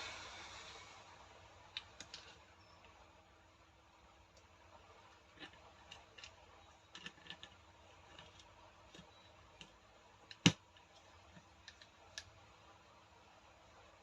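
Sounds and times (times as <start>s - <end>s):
small parts clicking and tapping: 5.2s - 12.4s.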